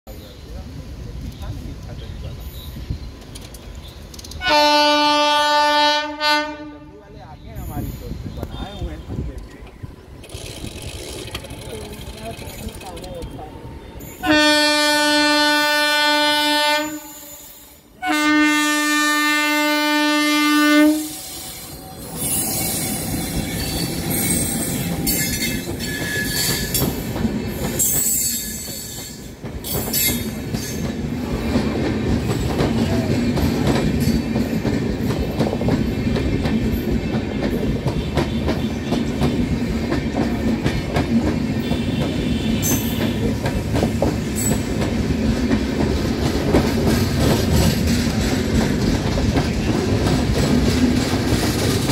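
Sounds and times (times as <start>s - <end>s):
train coaches rumbling past: 0.1s - 51.9s
locomotive horn blasts: 4.4s - 6.9s, 14.2s - 17.4s, 18.0s - 21.2s, 41.6s - 43.3s
wheels clacking over rail joints: 9.3s - 13.6s, 21.8s - 51.9s
thin wheel squeal: 21.1s - 26.8s.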